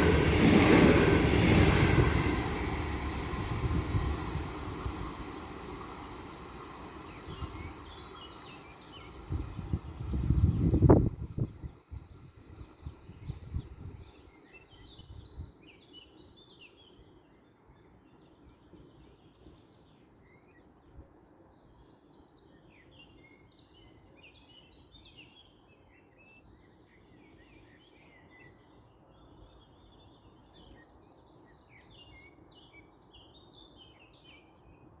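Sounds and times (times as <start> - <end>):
train rumbling: 0.0 - 11.5.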